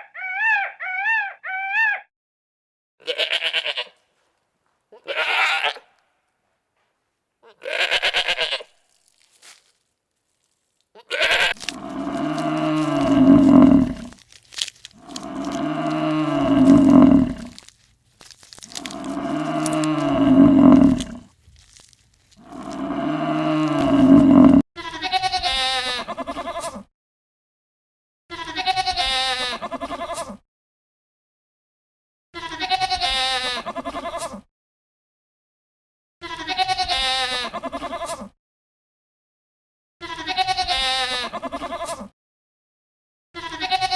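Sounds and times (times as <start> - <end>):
quavering bleats: 3.0 - 4.0, 5.0 - 5.9, 7.4 - 8.7, 11.0 - 17.7, 18.3 - 26.8, 28.3 - 30.3, 32.4 - 34.4, 36.2 - 38.3, 40.0 - 42.0, 43.4 - 43.9
low lowing calls: 11.5 - 24.6.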